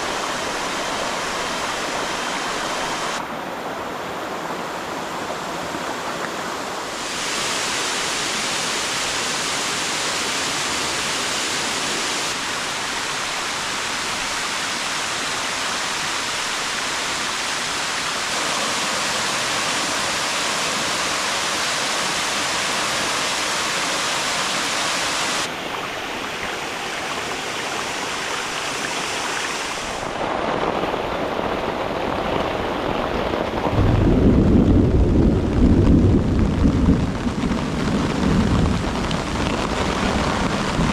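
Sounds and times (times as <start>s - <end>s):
rushing falling water: 0.0s - 40.9s
deep rumble: 33.7s - 40.9s.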